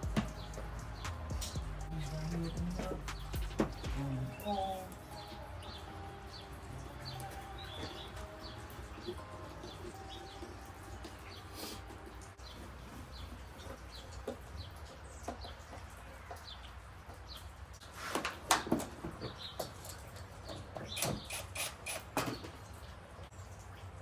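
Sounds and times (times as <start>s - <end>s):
low steady hum: 0.0s - 7.6s
birds chirping: 0.0s - 17.9s, 18.9s - 23.2s.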